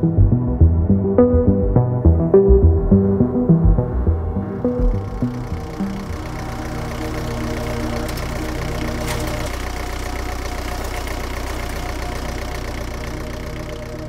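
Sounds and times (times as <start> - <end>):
engine idling with knocking pulse: 2.1 - 14.0.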